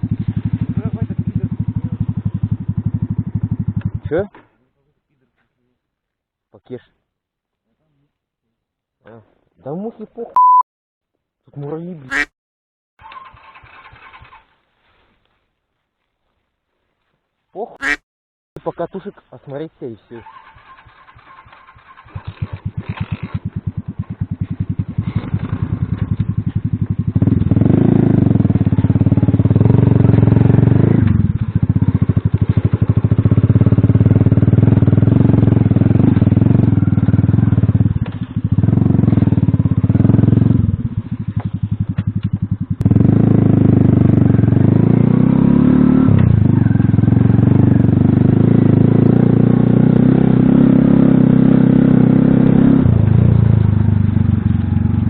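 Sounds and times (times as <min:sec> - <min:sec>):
single-cylinder motorcycle engine: 0:00.0 - 0:04.3, 0:13.0 - 0:14.6, 0:20.2 - 0:55.0.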